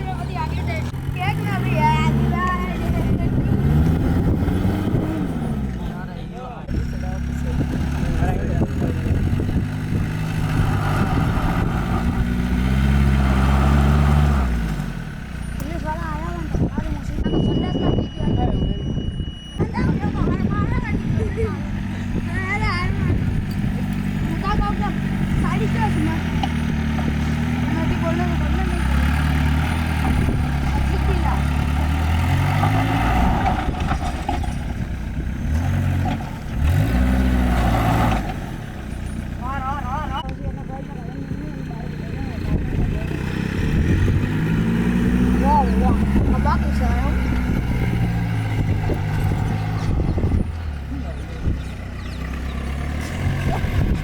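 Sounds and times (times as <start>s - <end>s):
car engine revving: 0.0s - 54.0s
knocks and rattles: 28.8s - 36.6s.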